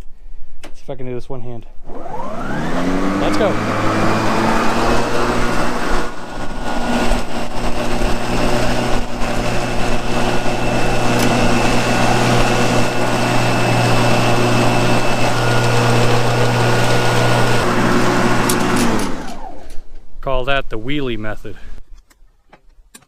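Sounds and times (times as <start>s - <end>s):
electric mower motor humming: 1.8s - 19.9s.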